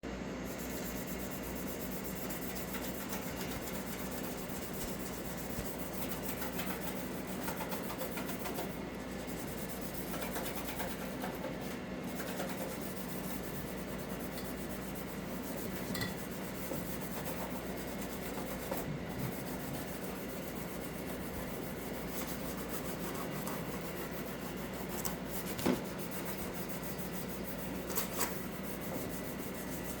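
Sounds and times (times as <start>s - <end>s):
scouring pad scrubbing: 12.1s - 30.0s.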